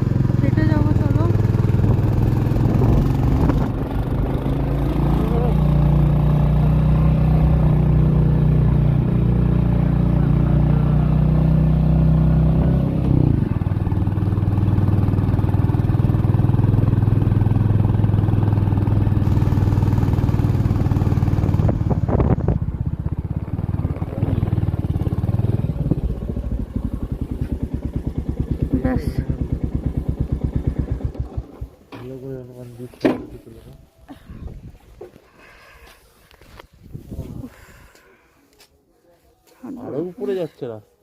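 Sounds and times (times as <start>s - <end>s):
motorcycle engine running: 0.0s - 32.6s.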